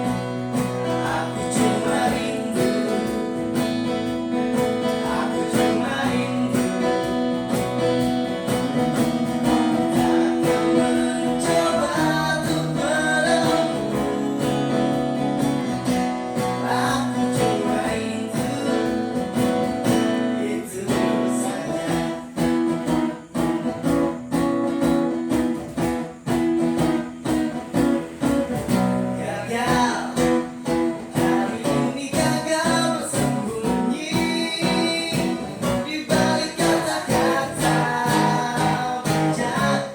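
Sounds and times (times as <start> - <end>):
person singing: 0.0 - 7.5, 9.4 - 22.7, 29.1 - 39.9
acoustic guitar strumming: 0.0 - 39.9.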